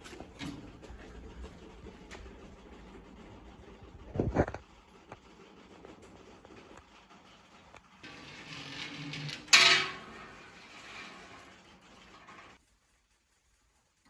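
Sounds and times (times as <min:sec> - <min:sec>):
metal objects handled: 0:08.0 - 0:12.6
loud metal clank: 0:08.1 - 0:12.6.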